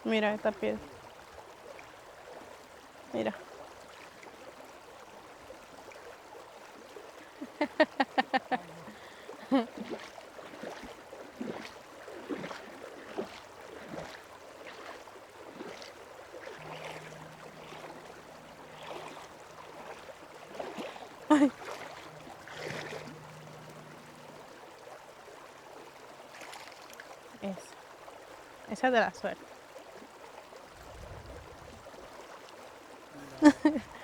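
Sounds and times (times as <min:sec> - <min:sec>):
river water flowing: 0:00.0 - 0:34.0
faint low hum: 0:15.7 - 0:25.0.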